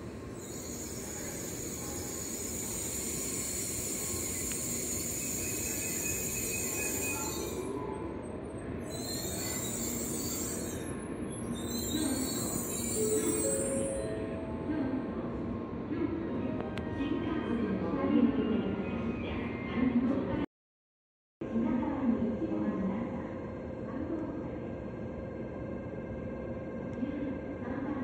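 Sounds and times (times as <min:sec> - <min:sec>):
train braking hiss: 0:00.3 - 0:07.8, 0:08.9 - 0:14.1
squealing brakes and wheels: 0:00.3 - 0:14.3.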